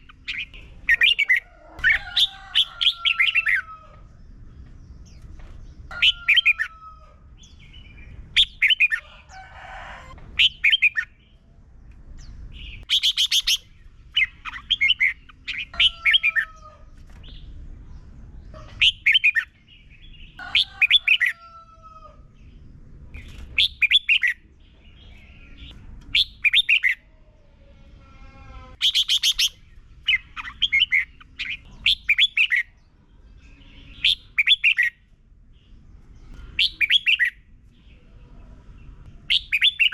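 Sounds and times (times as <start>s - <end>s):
bulbul singing: 12.2s - 16.5s, 28.8s - 35.7s, 39.0s - 39.9s.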